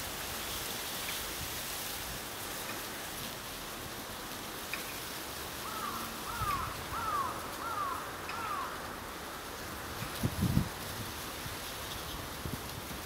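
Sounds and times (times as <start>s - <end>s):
steady background hiss: 0.0s - 13.0s
bird calling: 5.6s - 8.8s.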